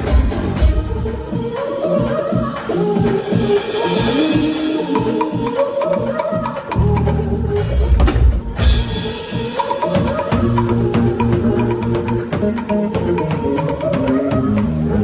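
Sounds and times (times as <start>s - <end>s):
drum kit beat: 0.0s - 15.0s.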